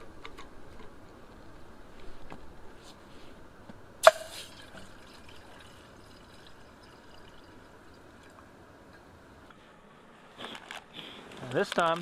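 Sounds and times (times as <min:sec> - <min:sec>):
faint handling sounds: 0:09.5 - 0:12.0.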